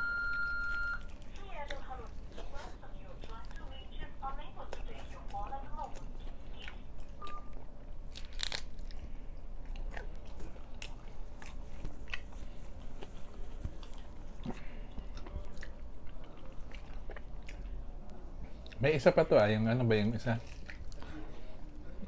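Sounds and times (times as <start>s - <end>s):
man chewing flatbread: 0.0s - 3.7s, 4.7s - 19.2s, 19.9s - 22.0s.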